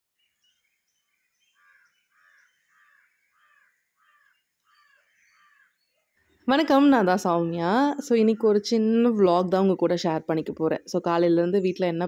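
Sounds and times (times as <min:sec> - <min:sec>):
faint harsh bird caws: 0:01.5 - 0:05.8.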